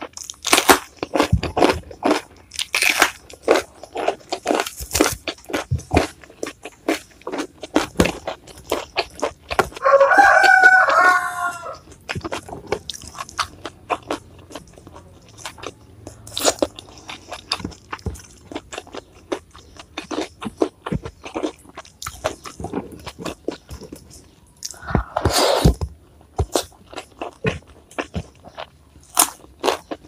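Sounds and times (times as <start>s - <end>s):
crunching raw vegetables: 0.0s - 30.0s
rooster crowing: 9.8s - 11.9s.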